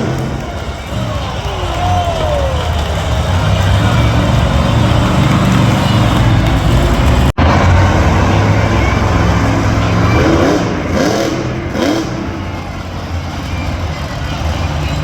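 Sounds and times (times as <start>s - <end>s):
crowd voices: 0.0s - 15.0s
monster truck engine running: 0.0s - 15.0s.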